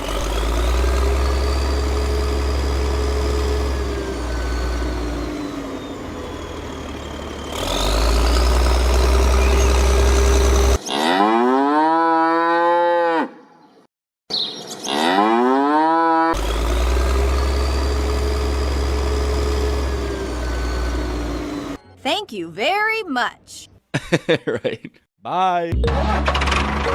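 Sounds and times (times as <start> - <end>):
engine hum: 0.0 - 10.8, 16.4 - 22.2.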